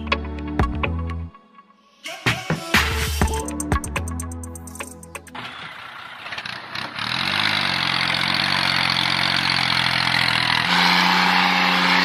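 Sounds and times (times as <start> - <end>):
tractor engine running: 4.0 - 12.0.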